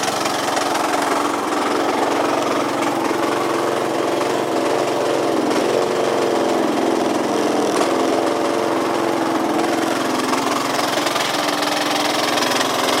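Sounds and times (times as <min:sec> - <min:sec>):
abnormal mechanical engine noise: 0:00.0 - 0:13.0
scooter engine running: 0:00.0 - 0:13.0.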